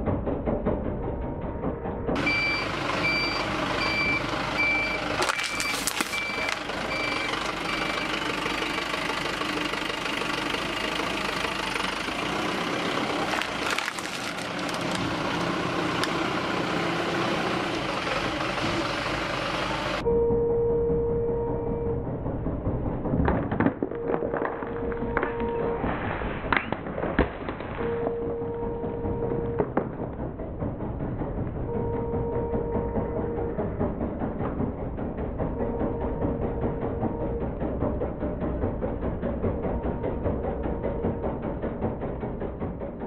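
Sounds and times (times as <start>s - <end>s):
truck engine running: 0.0s - 43.0s
truck reversing alarm beeping: 0.9s - 9.0s, 20.0s - 22.5s, 23.8s - 26.0s, 27.8s - 29.8s, 31.6s - 34.0s, 35.4s - 38.2s, 39.4s - 42.0s.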